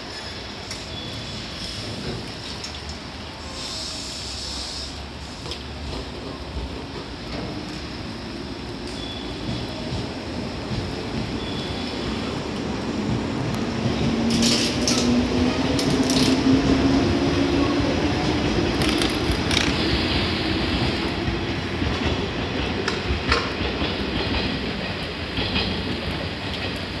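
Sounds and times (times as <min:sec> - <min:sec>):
wheels clacking over rail joints: 0:05.4 - 0:08.2, 0:13.0 - 0:16.8, 0:18.4 - 0:27.0.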